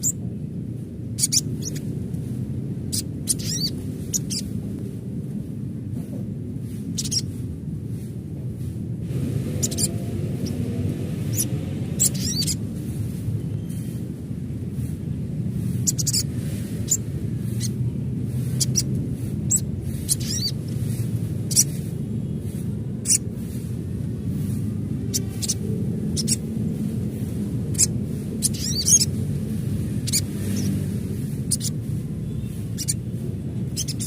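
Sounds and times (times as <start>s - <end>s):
steady low rumble: 0.0s - 34.0s
sunbird chirping: 1.2s - 2.0s, 2.8s - 4.6s, 6.8s - 7.4s, 9.2s - 14.1s, 15.5s - 23.7s, 24.3s - 34.0s.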